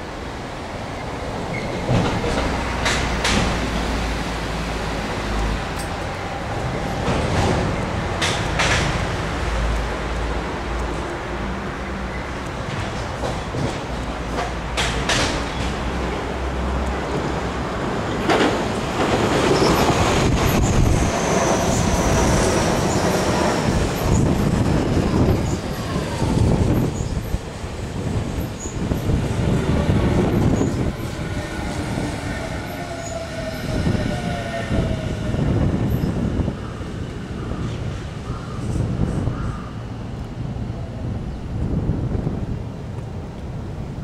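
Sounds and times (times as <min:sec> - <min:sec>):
wheels clattering over rail joints: 0:06.8 - 0:09.4
train squealing and whining: 0:19.0 - 0:39.3.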